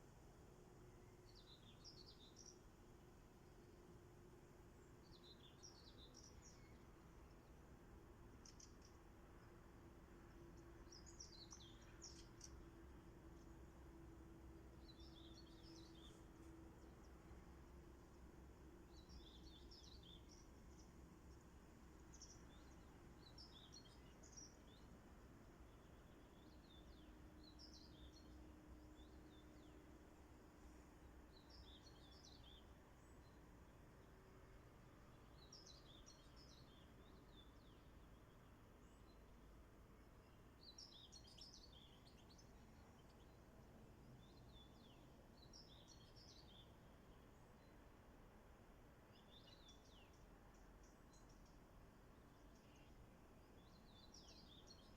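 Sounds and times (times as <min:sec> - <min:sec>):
small birds chirping: 0:01.0 - 0:02.7, 0:04.8 - 0:07.6, 0:08.3 - 0:09.5, 0:10.3 - 0:12.7, 0:14.8 - 0:17.2, 0:18.9 - 0:29.8, 0:31.0 - 0:34.1, 0:35.2 - 0:39.4, 0:40.0 - 0:47.8, 0:49.1 - 0:54.9.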